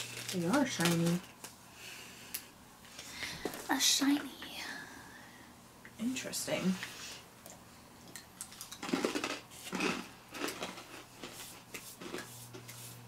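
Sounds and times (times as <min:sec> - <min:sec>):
crackers crunched and chewed: 0:00.0 - 0:01.4, 0:07.5 - 0:12.8.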